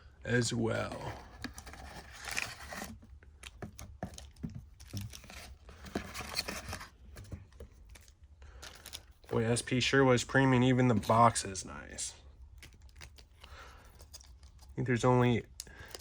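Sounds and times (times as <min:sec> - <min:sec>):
cardboard and plastic rustling tearing: 0:00.9 - 0:09.3
small clicks and scrapes: 0:01.0 - 0:09.3, 0:12.4 - 0:16.0.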